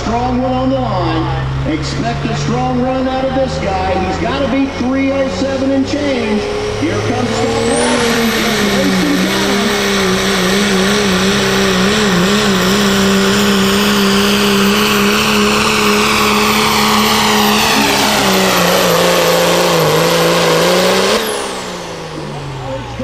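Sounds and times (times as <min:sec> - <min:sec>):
truck engine at full throttle: 0:00.0 - 0:23.0
high whine: 0:02.0 - 0:20.0.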